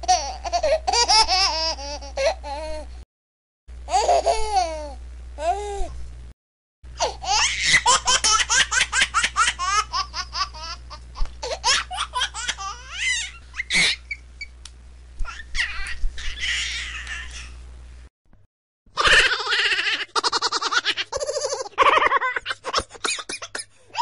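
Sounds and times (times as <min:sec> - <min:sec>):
baby laughing: 0:00.0 - 0:02.9, 0:03.9 - 0:05.0, 0:07.0 - 0:14.2, 0:15.2 - 0:17.6, 0:19.0 - 0:24.0.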